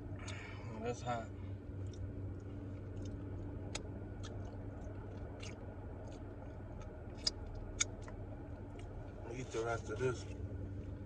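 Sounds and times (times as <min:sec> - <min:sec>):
steady low hum: 0:00.0 - 0:11.0
person chewing with lip smacks: 0:01.8 - 0:09.1.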